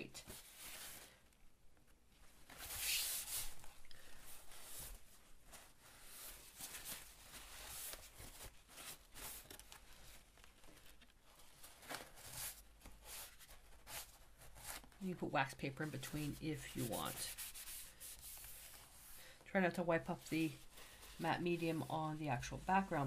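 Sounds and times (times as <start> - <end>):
paper rustling and rubbing: 0.0 - 1.2, 2.3 - 15.0, 15.6 - 19.3.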